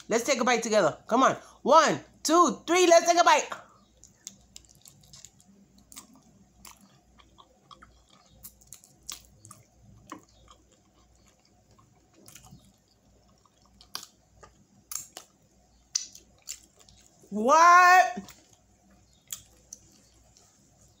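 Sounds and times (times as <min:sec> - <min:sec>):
wet chewing and mouth clicks: 0:03.8 - 0:17.3, 0:18.2 - 0:20.7.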